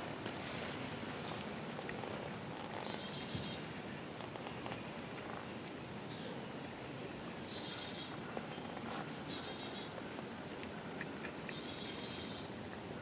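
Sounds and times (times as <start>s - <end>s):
outdoor background hiss: 0.0s - 13.0s
songbird trilling calls: 2.4s - 3.6s, 7.4s - 8.2s, 9.1s - 9.9s, 11.4s - 12.5s.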